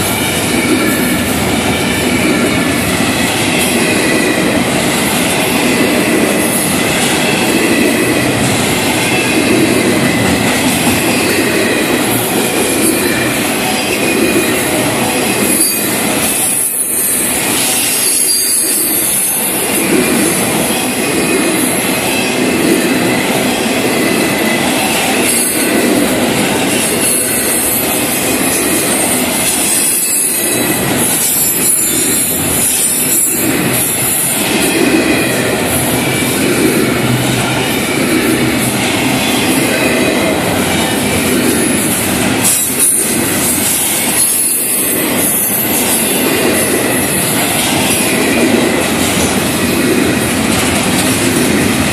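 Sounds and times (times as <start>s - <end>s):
wheels squealing: 0.0s - 49.3s
steel wheels rumbling on rail: 0.0s - 51.9s.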